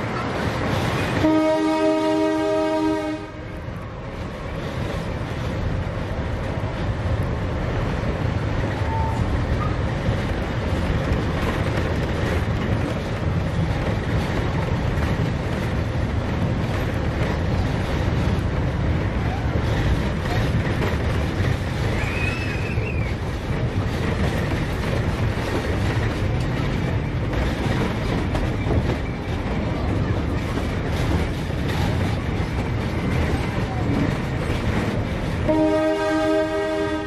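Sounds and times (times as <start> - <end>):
train rumbling: 0.0 - 37.0
train horn blast: 1.2 - 3.6, 35.4 - 37.0.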